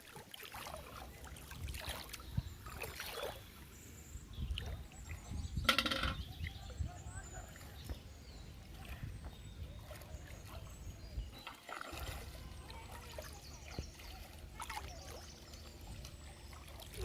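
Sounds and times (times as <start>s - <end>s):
small splashes on water: 0.0s - 3.6s, 8.6s - 17.0s
water trickling: 0.0s - 17.0s.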